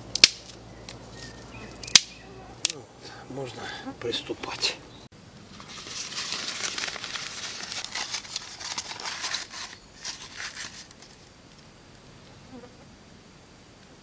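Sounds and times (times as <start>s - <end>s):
dry kindling crinkling: 0.0s - 11.7s.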